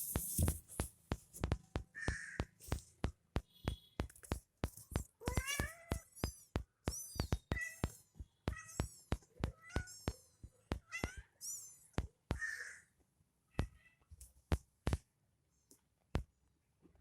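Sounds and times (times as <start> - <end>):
kittens mewing: 5.2 - 6.1.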